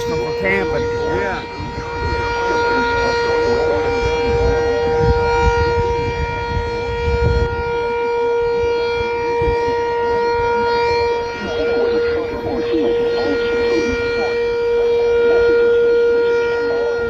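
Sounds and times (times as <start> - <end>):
warning siren steady tone: 0.0 - 17.0.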